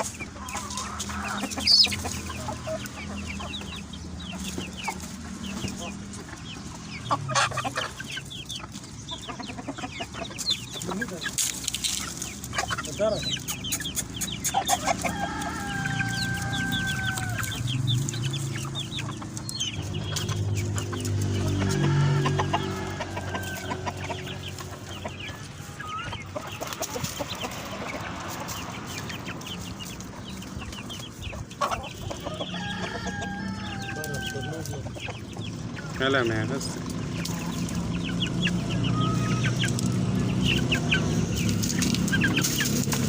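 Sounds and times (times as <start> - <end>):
chickens clucking and calling: 0.0 - 43.0.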